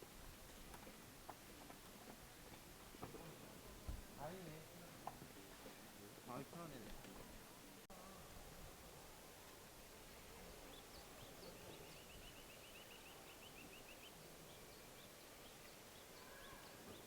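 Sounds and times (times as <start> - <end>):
background hiss: 0.0 - 17.0
faint songbirds chirping: 9.1 - 17.0.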